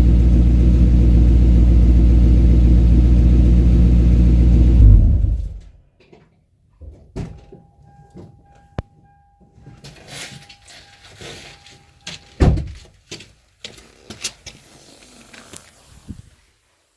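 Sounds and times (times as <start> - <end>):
steady tone: 4.7 - 5.6
car door shutting thump: 12.4 - 12.8.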